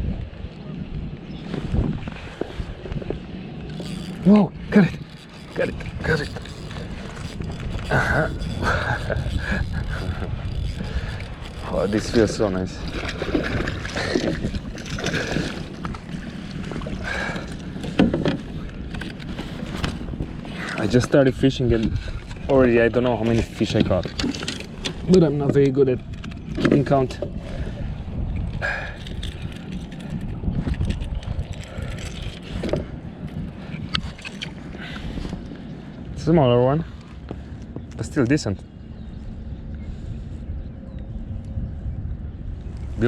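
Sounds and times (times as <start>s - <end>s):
wind on microphone: 0.0s - 43.0s
water against kayak hull: 0.1s - 36.2s
gear knocking: 3.7s - 15.8s.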